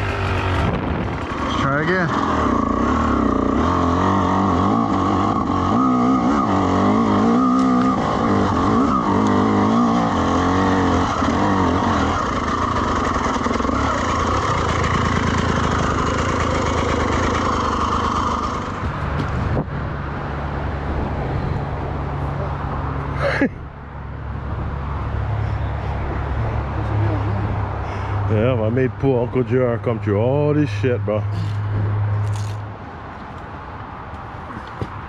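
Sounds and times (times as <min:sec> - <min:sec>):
dirt bike engine revving: 0:00.0 - 0:19.2.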